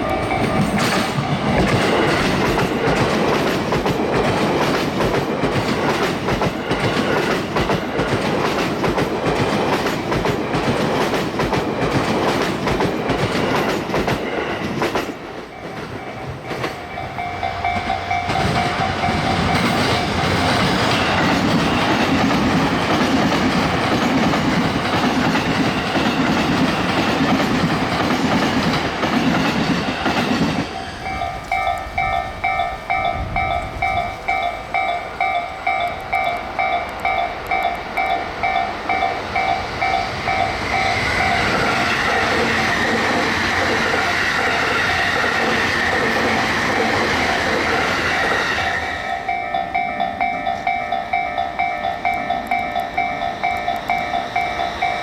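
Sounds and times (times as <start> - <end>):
crossing warning bell: 0.0 - 55.0
train clattering past: 0.0 - 55.0
train rushing through: 0.0 - 55.0.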